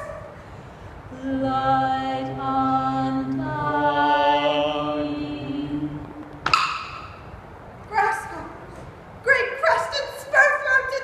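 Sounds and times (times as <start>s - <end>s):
voices singing chant-like drone: 0.0s - 7.4s.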